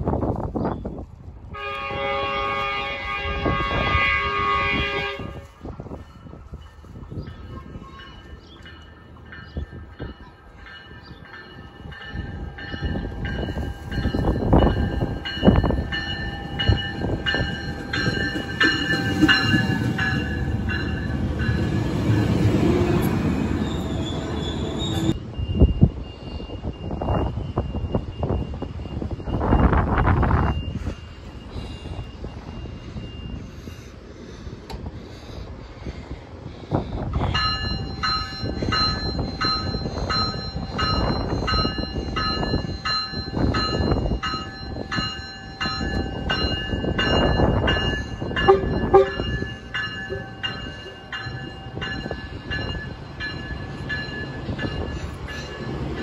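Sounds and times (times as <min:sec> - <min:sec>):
train rumbling: 0:00.0 - 0:56.0
train horn blast: 0:01.5 - 0:05.6, 0:48.4 - 0:49.4
high wheel squeal: 0:23.4 - 0:25.2.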